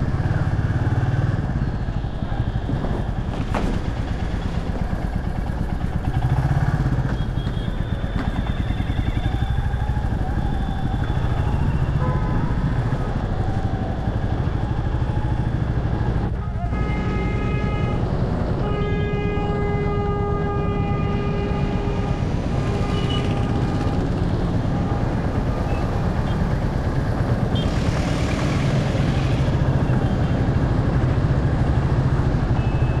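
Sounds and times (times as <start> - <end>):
motorcycle engine running: 3.8 - 13.9
vehicle horn blasts: 18.6 - 23.8.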